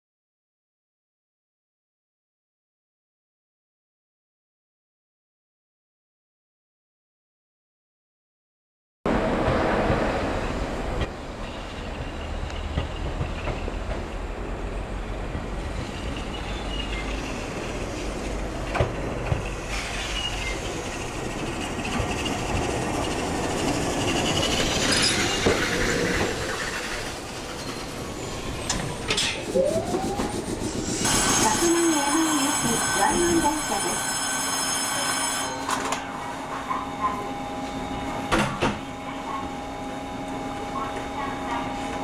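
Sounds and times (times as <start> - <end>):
high wheel squeal: 19.7 - 33.9.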